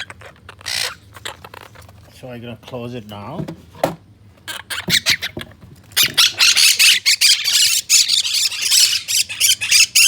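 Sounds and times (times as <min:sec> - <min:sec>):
parrots squawking: 0:00.0 - 0:01.9, 0:04.4 - 0:10.0.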